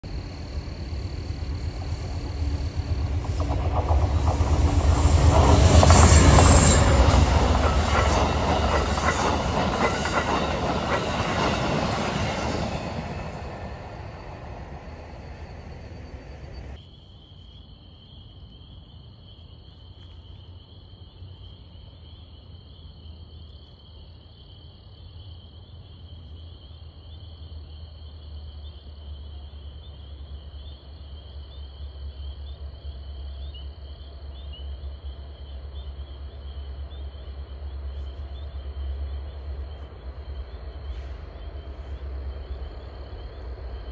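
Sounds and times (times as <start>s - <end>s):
distant train rumble: 0.0s - 16.8s, 29.0s - 43.9s
insects chirping: 0.0s - 43.9s
train wheels clattering and squealing: 0.5s - 16.8s.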